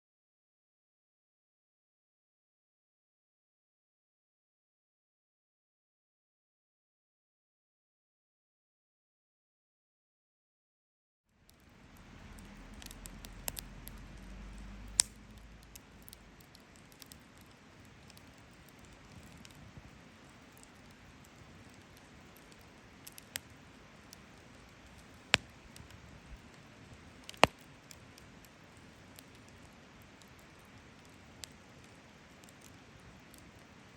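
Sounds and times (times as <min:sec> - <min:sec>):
fire popping: 0:11.4 - 0:33.9
fire ticking: 0:11.4 - 0:33.9
wood fire hissing: 0:11.4 - 0:33.9.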